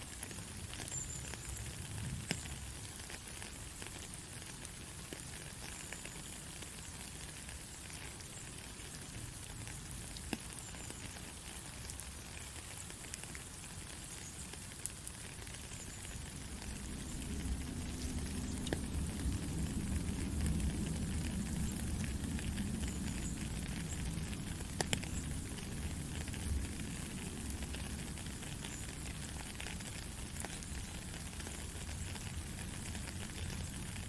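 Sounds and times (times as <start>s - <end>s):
heavy rain hissing: 13.6s - 34.0s
sharp raindrop hits: 15.6s - 34.0s
low rumble: 16.3s - 27.7s.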